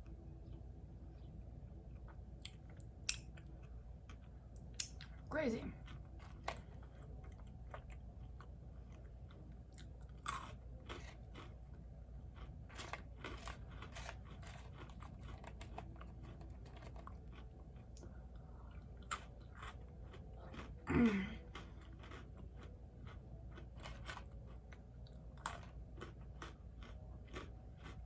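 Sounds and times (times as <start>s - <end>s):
person chewing crunchy food: 5.8s - 28.0s.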